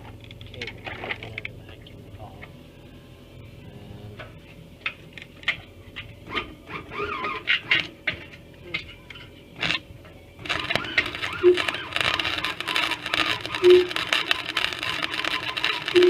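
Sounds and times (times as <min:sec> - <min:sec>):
welder arc crackling: 0:09.1 - 0:16.0.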